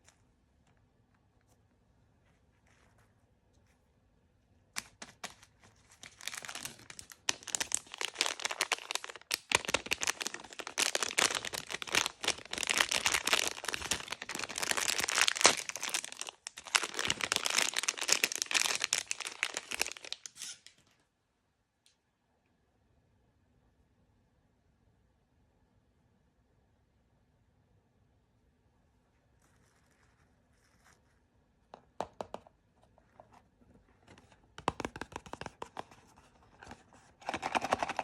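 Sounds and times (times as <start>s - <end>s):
plastic wrapper crumpling and tearing: 4.8s - 20.7s, 36.6s - 38.0s.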